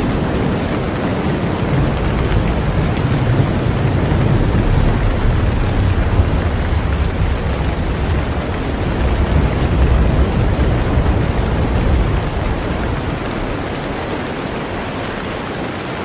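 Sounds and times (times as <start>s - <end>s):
heavy rain on a boat: 0.0s - 16.0s
deep low rumble: 1.7s - 13.8s.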